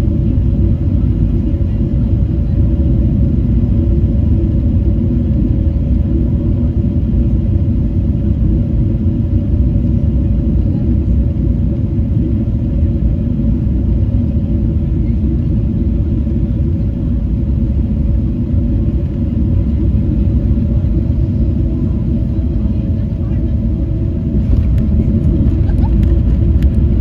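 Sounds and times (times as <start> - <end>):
airliner cabin rumble: 0.0 - 27.0.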